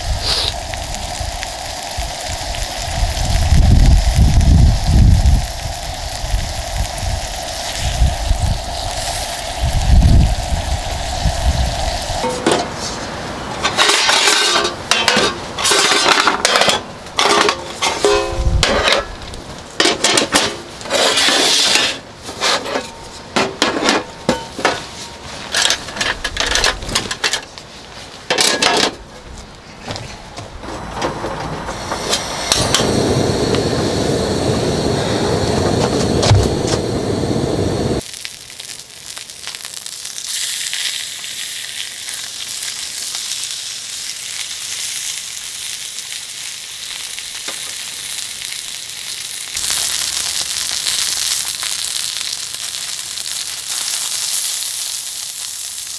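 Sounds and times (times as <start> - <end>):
steady rushing noise: 0.0 - 27.4, 30.4 - 38.0
steady hiss: 0.0 - 28.3, 30.6 - 55.9
dishes and pots clinking: 13.6 - 19.1, 19.8 - 24.9, 28.3 - 29.0.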